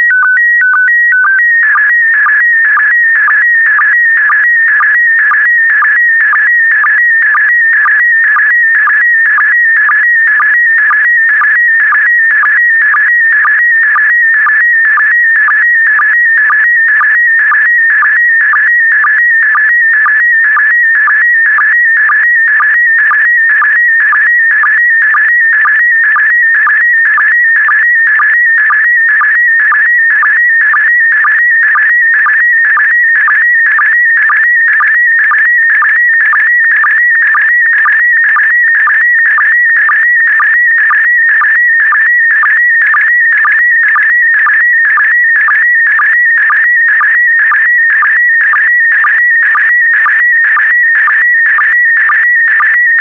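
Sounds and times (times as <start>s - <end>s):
warbling data signal tone: 0.0s - 9.0s.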